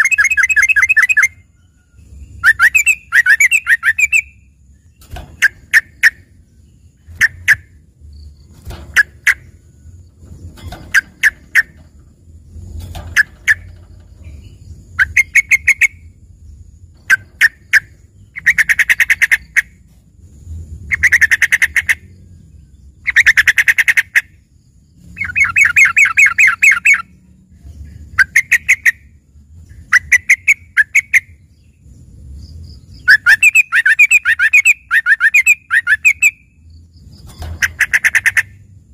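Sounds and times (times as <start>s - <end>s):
bulbul chattering song: 0.0s - 12.2s, 13.1s - 19.8s, 20.7s - 22.1s, 23.0s - 38.8s.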